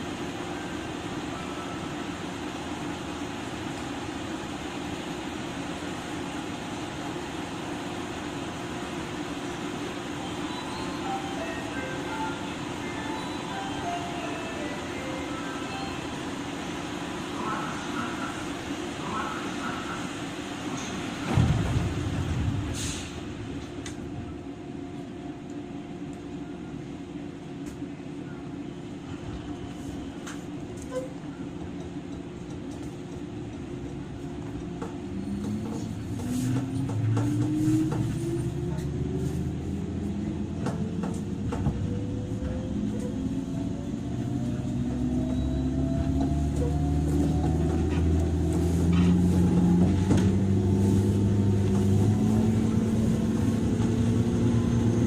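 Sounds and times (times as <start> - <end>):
train motor humming and whining: 30.1 - 55.0.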